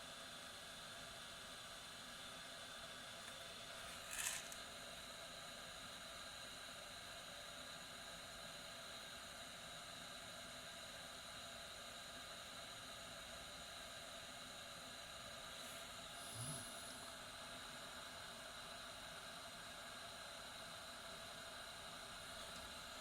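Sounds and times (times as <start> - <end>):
hot-air station hissing: 3.1 - 4.6, 15.4 - 17.2.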